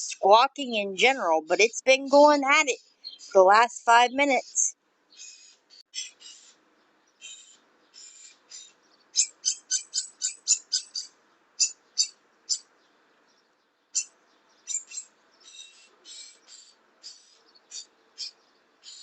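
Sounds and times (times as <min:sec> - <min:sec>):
bird squawking harshly: 0:05.2 - 0:06.6, 0:07.2 - 0:12.6, 0:14.7 - 0:19.0.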